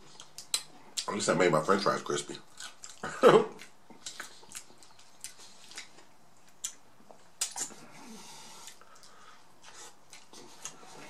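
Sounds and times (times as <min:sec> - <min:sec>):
close chewing: 0:02.4 - 0:11.0
wet mouth clicks and smacks: 0:07.4 - 0:07.8.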